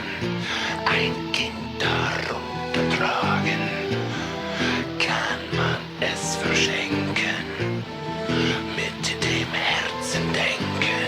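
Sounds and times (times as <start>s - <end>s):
background music melody: 0.0s - 11.0s.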